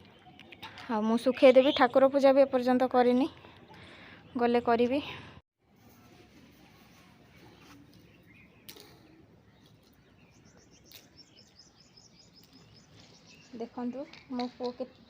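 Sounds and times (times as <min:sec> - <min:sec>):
high bird chirps: 0:09.5 - 0:13.6.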